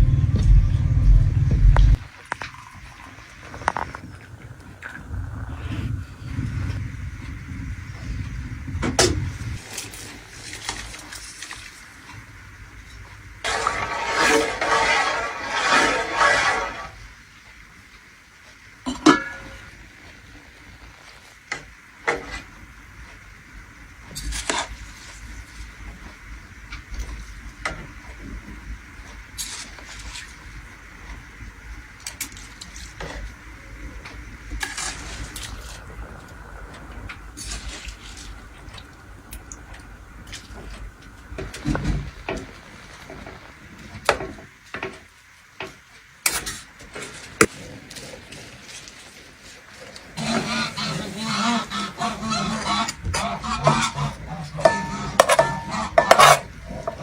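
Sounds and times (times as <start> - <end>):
faint steady hiss: 0.0 - 57.0
utensil knocking and scraping pot: 13.5 - 16.9, 52.6 - 57.0.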